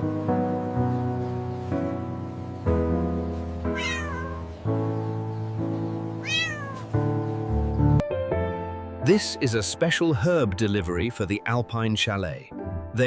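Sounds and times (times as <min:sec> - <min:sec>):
background music of held chords: 0:00.0 - 0:13.0
cat meowing: 0:03.7 - 0:04.6, 0:06.2 - 0:06.9.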